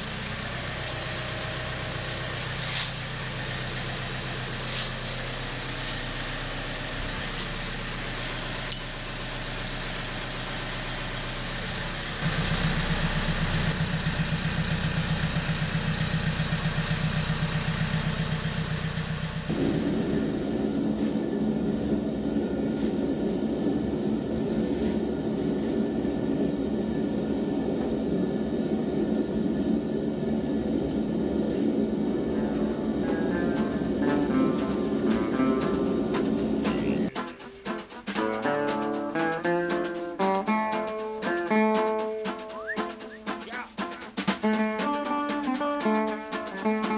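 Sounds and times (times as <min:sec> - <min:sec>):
tractor engine running: 0:00.0 - 0:46.9.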